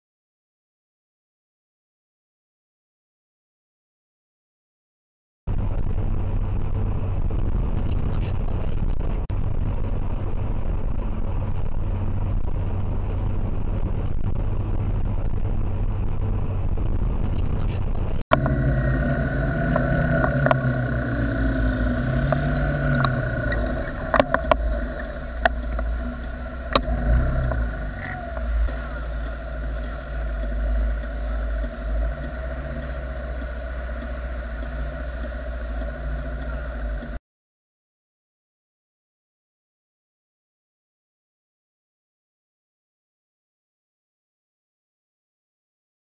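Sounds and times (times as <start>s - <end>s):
motorcycle engine running: 5.5s - 37.2s
wind and road noise: 5.5s - 37.2s.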